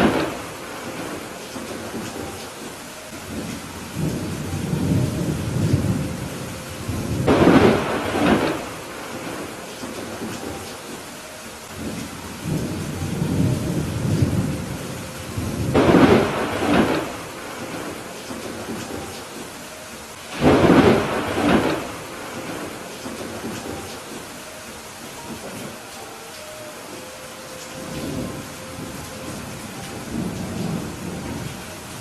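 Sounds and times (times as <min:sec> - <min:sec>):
thunder rolling: 0:00.0 - 0:02.4, 0:03.3 - 0:10.6, 0:11.8 - 0:19.5, 0:20.3 - 0:24.2
steady rain: 0:00.0 - 0:32.0.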